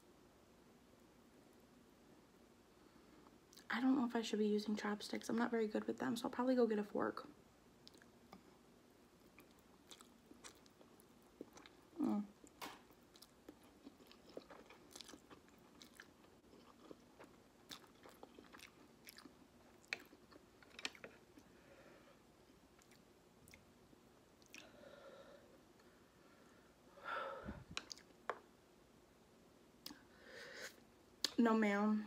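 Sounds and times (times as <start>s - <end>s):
person chewing noodles: 7.8s - 8.4s, 9.2s - 21.5s, 22.7s - 23.7s, 24.4s - 24.8s, 27.8s - 28.2s.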